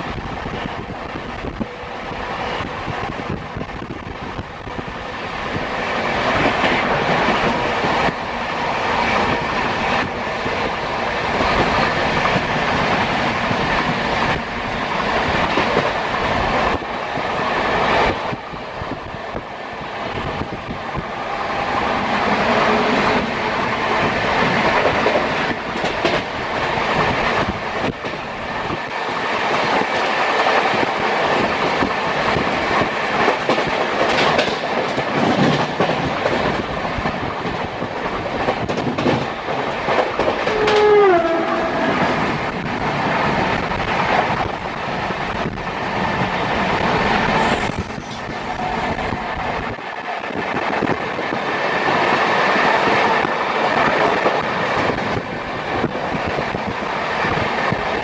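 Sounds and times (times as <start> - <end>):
train wheels rumbling on rail: 0.0 - 58.0
wheels clacking over rail joints: 33.2 - 42.7.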